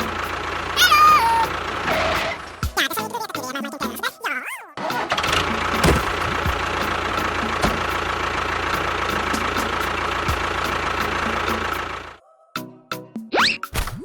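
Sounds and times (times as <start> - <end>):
knocks: 5.8 - 6.6.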